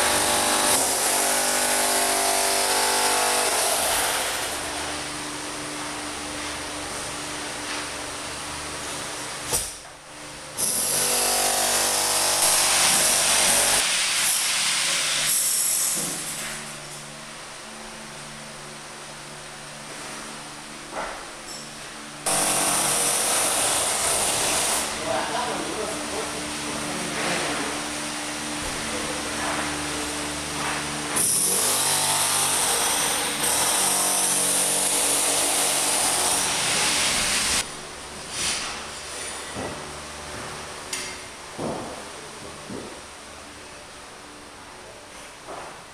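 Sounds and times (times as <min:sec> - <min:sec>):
power tool running: 0:00.0 - 0:05.5, 0:10.6 - 0:16.7, 0:22.2 - 0:26.2, 0:26.8 - 0:37.7
steady machine hum: 0:00.0 - 0:45.9.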